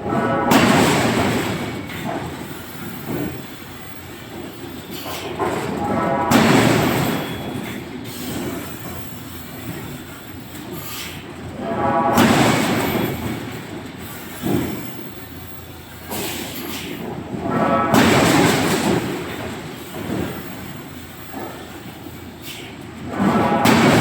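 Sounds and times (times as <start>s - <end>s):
rumbling forging machinery: 11.4s - 24.0s.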